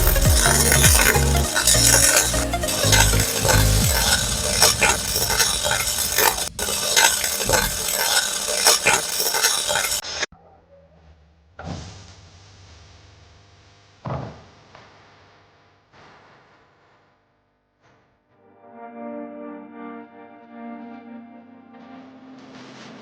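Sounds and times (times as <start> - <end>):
soft background music: 0.0 - 4.8
welding arc crackling: 0.0 - 10.3.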